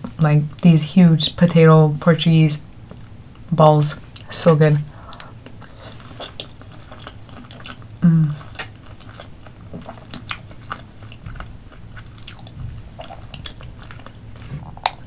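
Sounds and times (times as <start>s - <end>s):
person chewing soft food: 4.9s - 15.0s
person humming: 8.0s - 8.4s.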